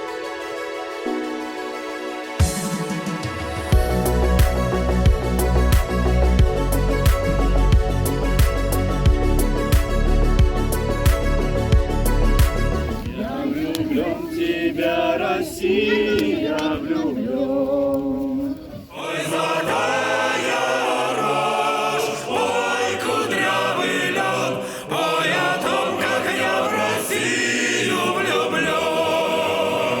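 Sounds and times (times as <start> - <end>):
group of voices singing: 12.8 - 30.0.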